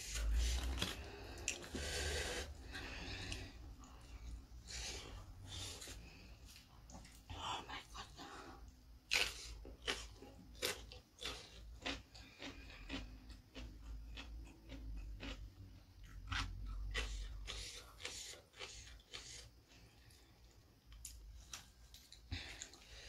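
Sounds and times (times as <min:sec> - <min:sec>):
cucumber crunching: 0:00.1 - 0:01.8, 0:09.0 - 0:15.4, 0:16.0 - 0:19.4.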